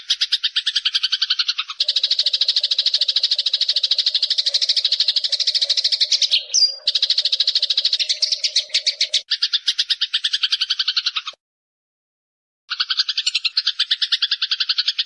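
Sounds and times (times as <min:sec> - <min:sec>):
sparrows chirping: 0:00.0 - 0:11.4, 0:12.7 - 0:15.0.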